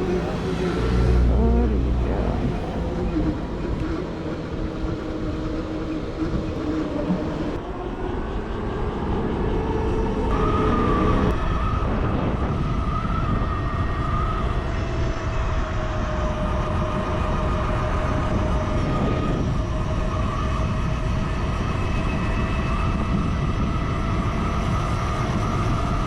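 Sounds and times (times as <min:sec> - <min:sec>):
road rumble: 0:00.0 - 0:11.8
wind noise: 0:00.0 - 0:26.0.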